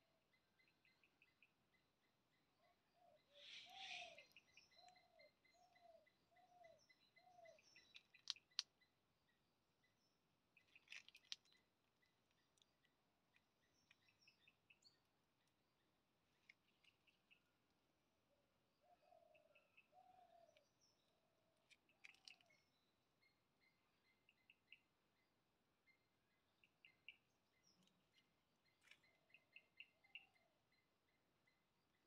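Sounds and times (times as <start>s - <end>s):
low hooting bird notes: 3.0s - 5.2s.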